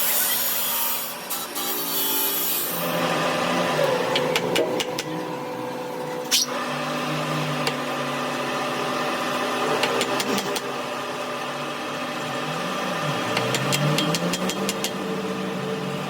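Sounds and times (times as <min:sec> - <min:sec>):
machine motor humming: 0:02.6 - 0:16.0.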